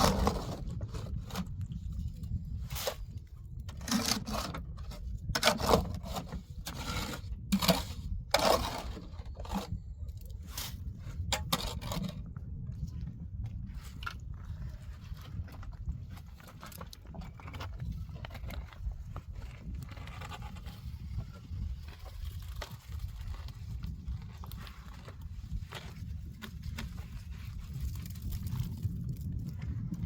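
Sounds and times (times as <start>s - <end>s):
scraping strokes: 2.6s - 9.8s
steady low rumble: 4.6s - 30.0s.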